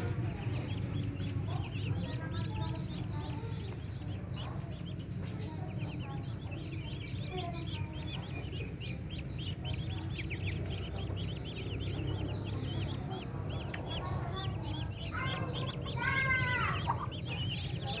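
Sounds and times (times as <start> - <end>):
ducklings peeping: 0.0 - 18.0.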